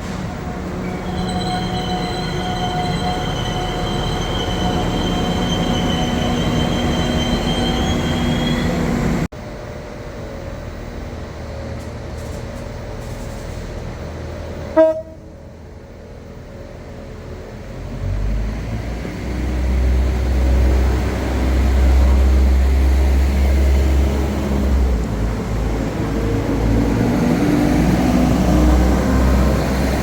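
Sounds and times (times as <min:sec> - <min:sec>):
train rumble: 0:00.0 - 0:30.0
high-pitched whining tones: 0:00.2 - 0:09.3
train horn toot: 0:14.7 - 0:15.3.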